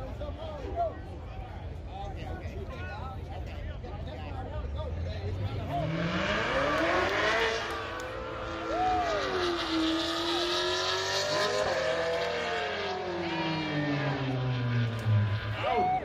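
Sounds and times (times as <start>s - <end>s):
drag racing car engine: 4.5s - 16.0s.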